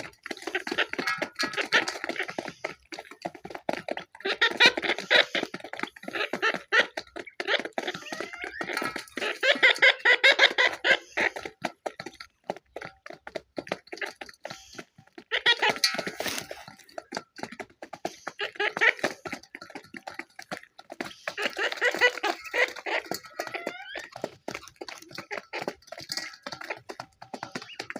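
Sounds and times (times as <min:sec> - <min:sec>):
birds chattering: 0:00.0 - 0:03.2, 0:04.1 - 0:12.3, 0:14.0 - 0:17.0, 0:18.0 - 0:27.9.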